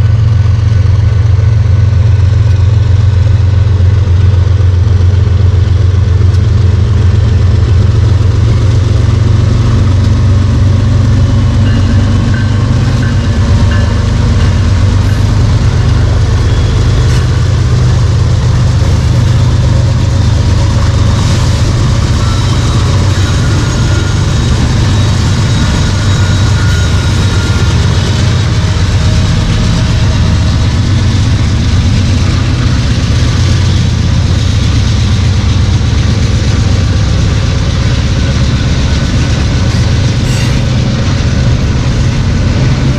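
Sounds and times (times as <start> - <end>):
freight train diesel rumble: 0.0 - 42.9.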